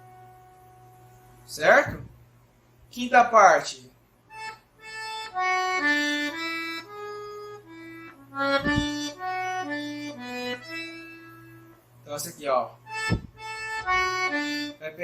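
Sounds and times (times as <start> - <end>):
accordion melody: 0.0 - 2.1, 4.3 - 12.2, 12.8 - 15.0
short low thud: 1.9 - 2.2, 8.5 - 9.1, 13.0 - 14.3.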